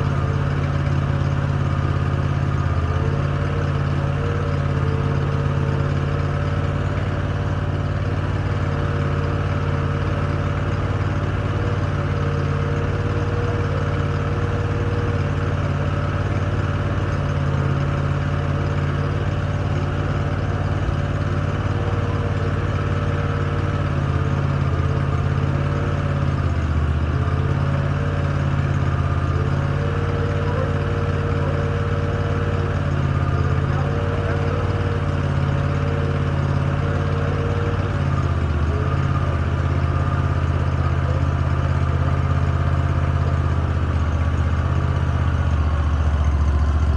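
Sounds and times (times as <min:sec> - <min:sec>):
engine idling: 0:00.0 - 0:46.9.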